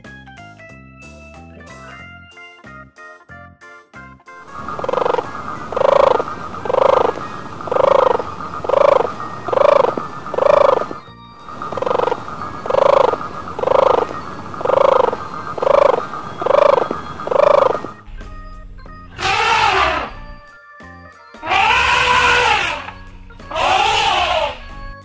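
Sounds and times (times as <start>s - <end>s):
animal call short pitched note: 19.2s - 20.3s, 21.4s - 24.8s.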